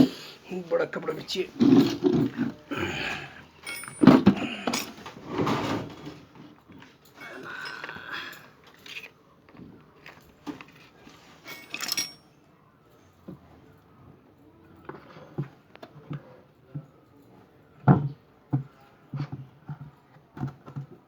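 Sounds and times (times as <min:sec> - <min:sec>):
metal parts clinking: 0:01.0 - 0:02.7, 0:03.5 - 0:09.2, 0:10.0 - 0:12.3.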